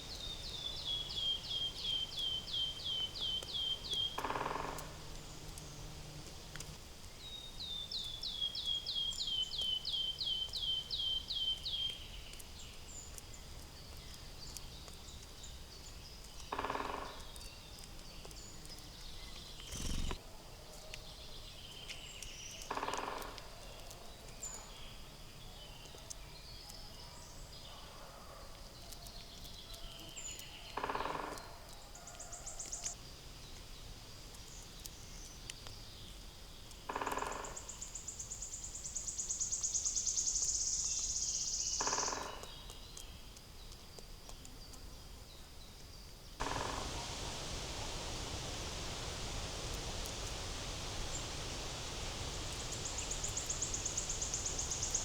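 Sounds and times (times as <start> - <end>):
harsh bird calls: 46.4 - 55.0
steady background noise: 46.4 - 55.0
thin high bird chirps: 46.4 - 55.0.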